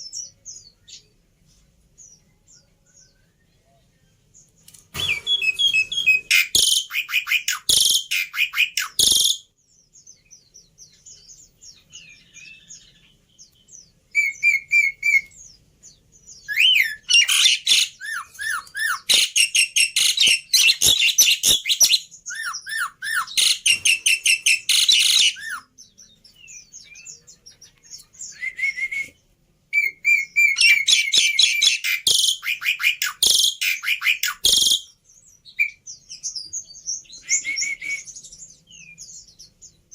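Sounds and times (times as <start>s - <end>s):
starling chirps and whistles: 5.0s - 9.5s, 14.1s - 15.4s, 16.4s - 25.7s, 28.2s - 39.5s.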